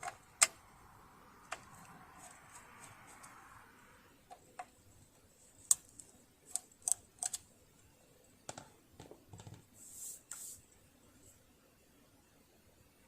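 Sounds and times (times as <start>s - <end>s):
short hiss: 9.8s - 10.7s.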